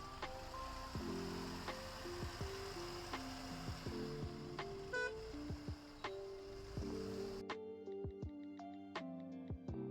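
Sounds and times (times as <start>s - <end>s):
electronic music: 0.0s - 7.5s.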